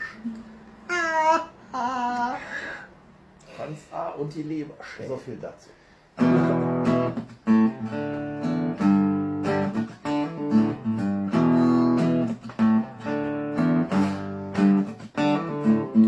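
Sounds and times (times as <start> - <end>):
acoustic guitar strumming: 6.2 - 16.0.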